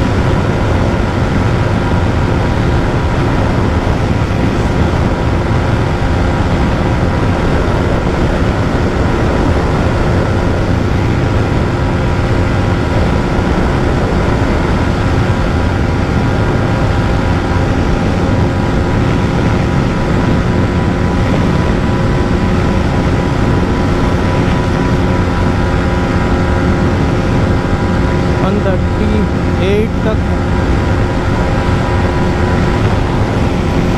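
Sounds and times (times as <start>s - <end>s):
motorcycle engine at high rpm: 0.0s - 33.9s
wind rushing: 0.0s - 33.9s.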